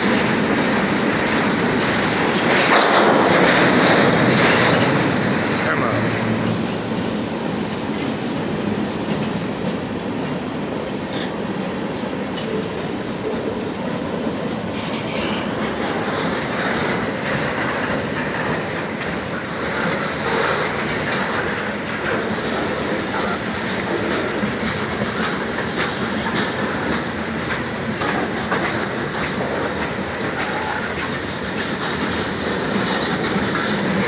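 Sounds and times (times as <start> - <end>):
steel train wheels on rails: 0.0 - 34.0.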